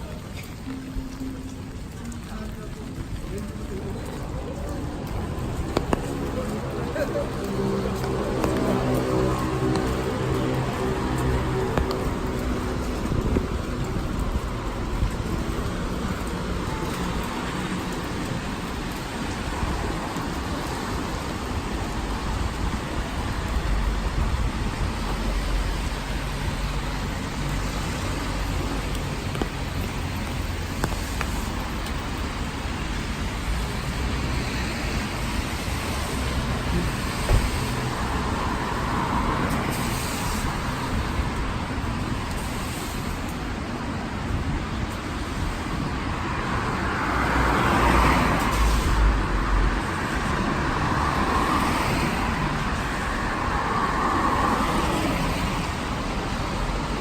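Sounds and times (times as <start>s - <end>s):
steady rain: 0.0s - 57.0s
traffic noise: 0.0s - 57.0s
car tyres hissing on wet road: 2.1s - 57.0s.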